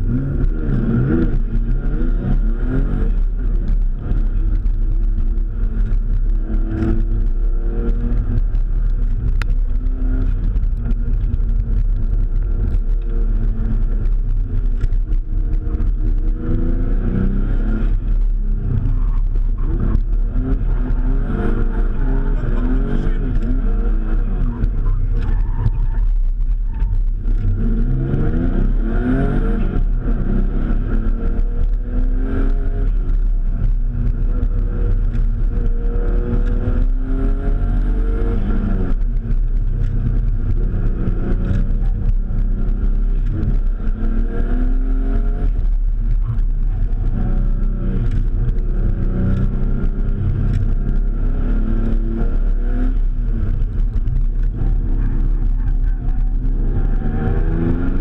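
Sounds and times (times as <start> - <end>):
car engine revving: 0.0 - 58.0
deep rumble: 0.0 - 58.0.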